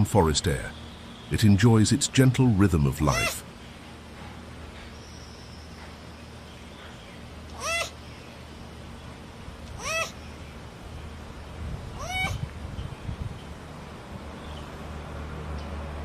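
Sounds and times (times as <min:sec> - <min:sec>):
animal meow-like cries: 0:07.5 - 0:08.0, 0:09.8 - 0:10.2, 0:12.0 - 0:12.5.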